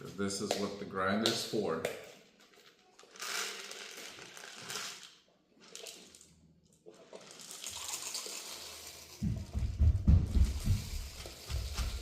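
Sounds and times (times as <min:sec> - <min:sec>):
peppercorns pouring into mill: 0:03.0 - 0:06.2, 0:06.9 - 0:09.4.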